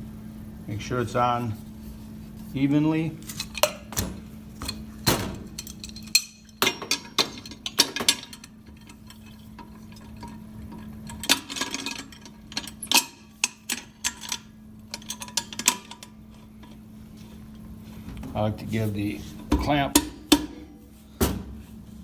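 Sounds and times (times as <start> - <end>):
steady low hum: 0.0 - 22.0
metal parts clinking and knocking: 3.3 - 16.8.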